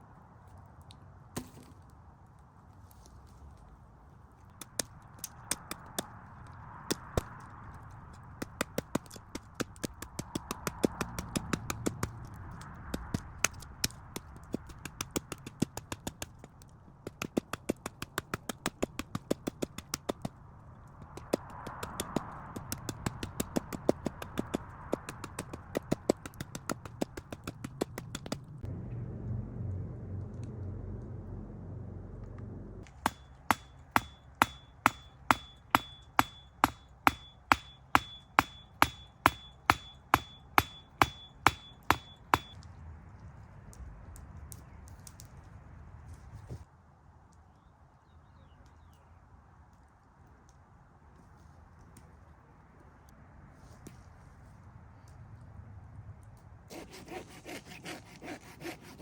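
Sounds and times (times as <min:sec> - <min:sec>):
rapid sharp knocks: 0:08.0 - 0:28.7, 0:32.8 - 0:42.6
low rumble: 0:28.2 - 0:33.8
strikes with metallic ring: 0:32.8 - 0:42.6.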